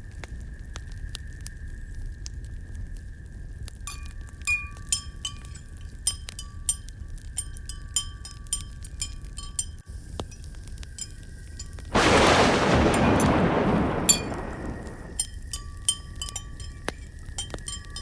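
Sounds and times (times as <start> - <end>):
light glassy clinks: 3.9 - 12.1
fireplace fire rumble: 11.9 - 15.2.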